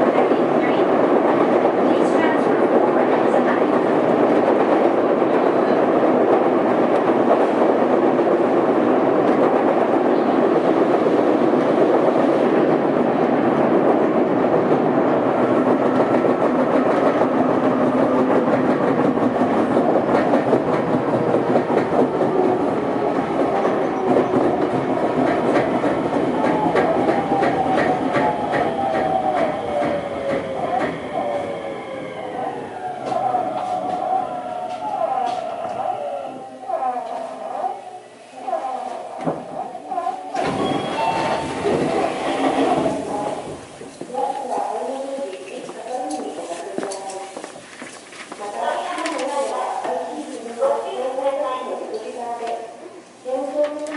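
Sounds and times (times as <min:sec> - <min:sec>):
train wheels pounding rhythmically: 0:00.0 - 0:36.0.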